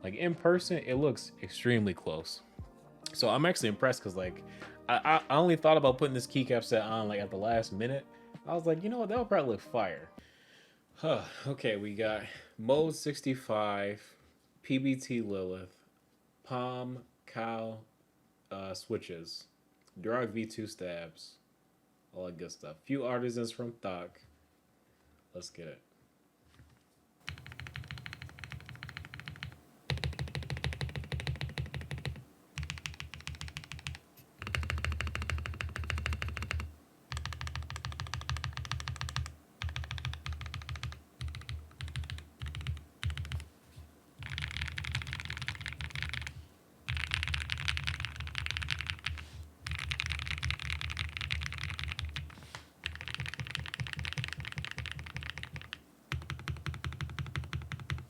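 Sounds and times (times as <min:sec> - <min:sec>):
mechanical keyboard typing: 0:27.3 - 0:43.5, 0:44.2 - 0:58.0.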